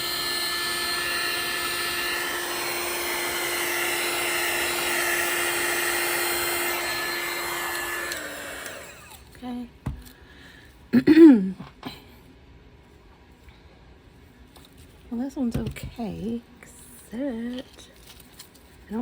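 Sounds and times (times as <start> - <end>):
hot-air blower running: 0.0 - 9.4.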